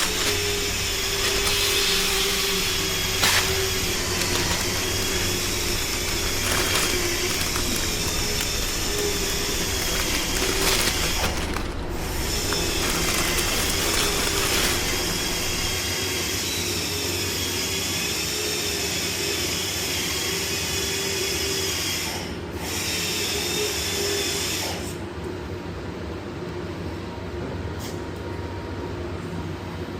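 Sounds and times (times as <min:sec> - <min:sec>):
pneumatic tool hiss and whine: 0:00.0 - 0:15.8.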